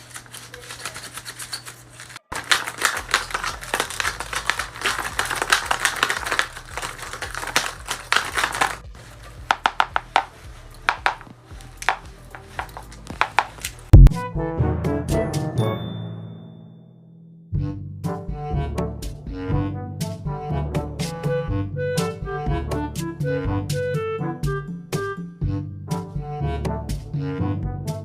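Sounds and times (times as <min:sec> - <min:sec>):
paper rustling and clicking: 0:00.0 - 0:13.9.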